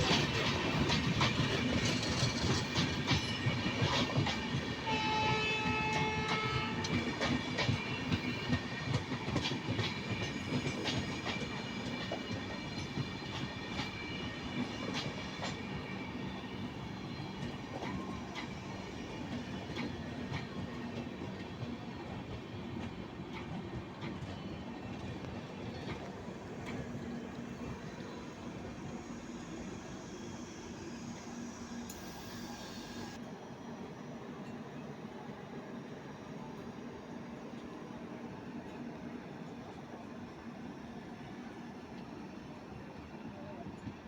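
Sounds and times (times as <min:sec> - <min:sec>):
train wheels clattering over rails: 0:00.0 - 0:04.9, 0:05.6 - 0:28.6.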